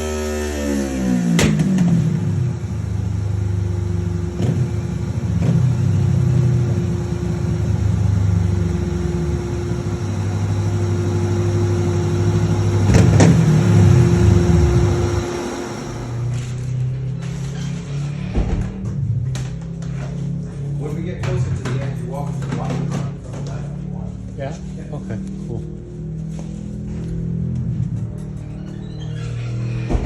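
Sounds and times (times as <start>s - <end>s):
motorcycle engine idling and revving: 0.0s - 30.0s.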